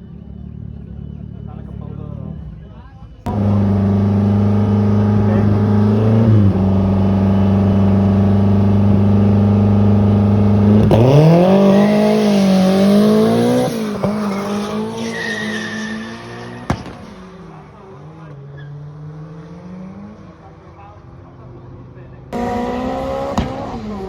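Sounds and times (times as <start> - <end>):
drag car engine revving: 3.3 - 20.6, 22.3 - 24.0
tyre noise: 10.1 - 17.5
sharp crack: 16.1 - 17.6.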